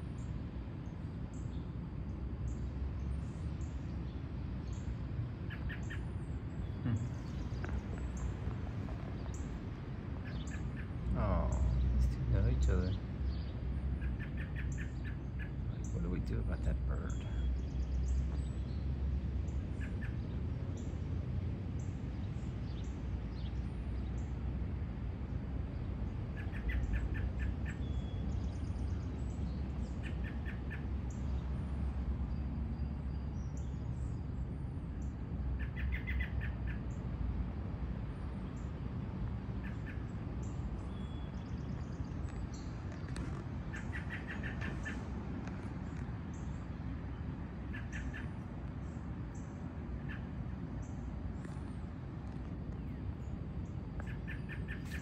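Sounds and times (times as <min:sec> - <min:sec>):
birds chirping trills: 0:00.1 - 0:18.9, 0:25.6 - 0:37.2, 0:39.6 - 0:52.0, 0:52.7 - 0:55.0.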